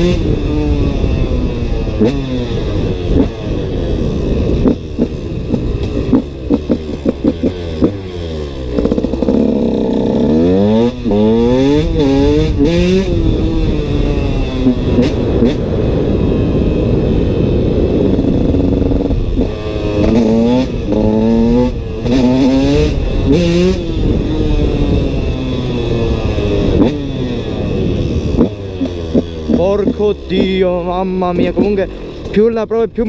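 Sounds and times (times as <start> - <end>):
motorcycle engine revving: 0.0 - 33.0
wind noise: 0.0 - 33.0.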